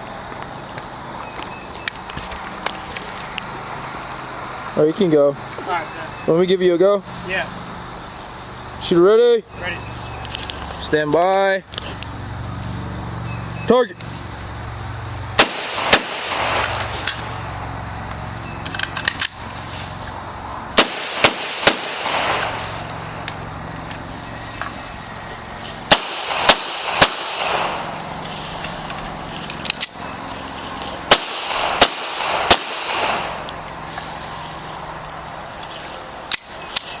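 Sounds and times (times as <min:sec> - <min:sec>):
gunshots with echo: 0:15.4 - 0:17.4, 0:20.8 - 0:22.9, 0:25.8 - 0:28.2, 0:31.1 - 0:33.5.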